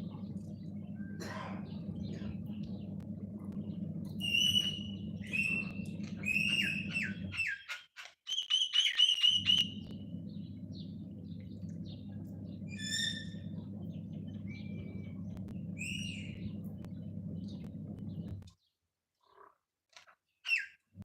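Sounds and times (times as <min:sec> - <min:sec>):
steady low hum: 0:00.0 - 0:07.5, 0:09.4 - 0:18.5
birds chirping and whistling: 0:03.5 - 0:18.4.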